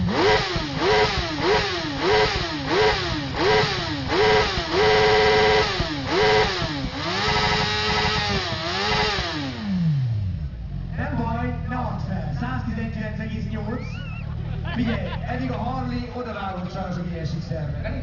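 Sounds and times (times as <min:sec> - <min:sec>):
motorcycle engine revving hard: 0:00.0 - 0:11.2.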